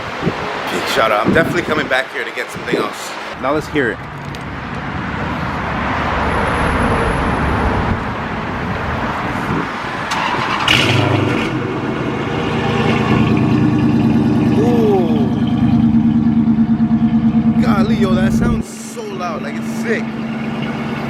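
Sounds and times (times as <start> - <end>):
car exhaust running loud: 10.7 - 21.0.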